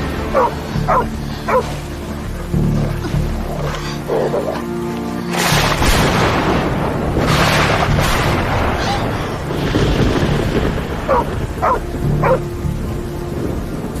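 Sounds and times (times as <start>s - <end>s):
heavy rain: 0.0s - 14.0s
dog barking: 0.3s - 1.7s, 11.1s - 12.4s.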